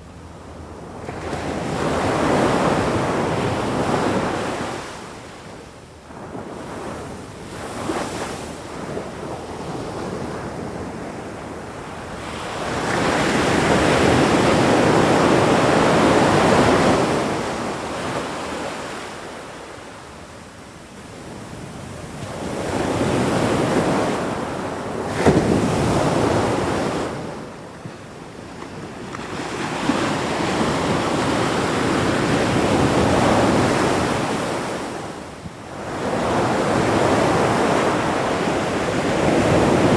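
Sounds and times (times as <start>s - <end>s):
ocean waves breaking on shore: 21.2s - 39.9s.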